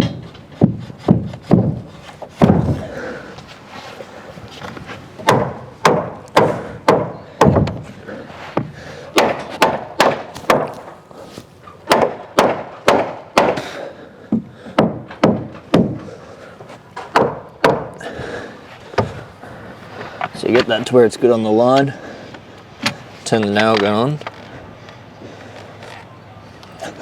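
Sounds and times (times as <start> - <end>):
hammer driving nails into wood: 5.2 - 7.8, 9.2 - 11.0, 11.9 - 13.8, 14.7 - 16.1, 17.0 - 18.0.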